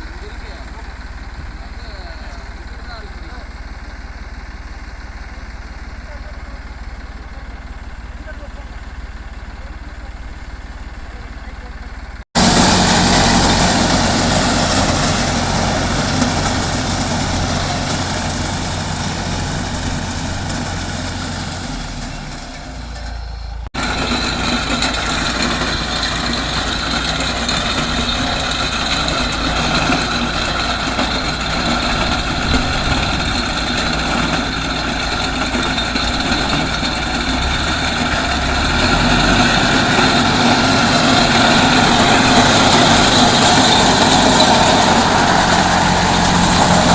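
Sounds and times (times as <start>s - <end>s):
tractor diesel engine running: 0.0s - 46.9s
reaper cutting stalks: 12.4s - 22.5s, 23.8s - 46.9s.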